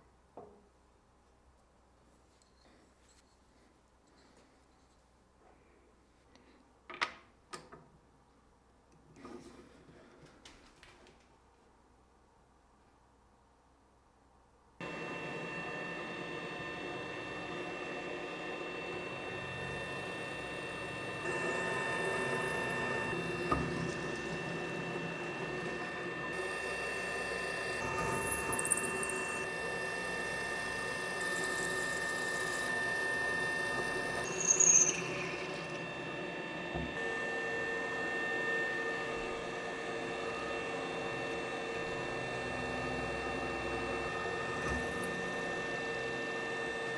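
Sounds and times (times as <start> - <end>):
machine tool whining: 14.8 - 46.9
metal cutting squeals: 14.9 - 36.5.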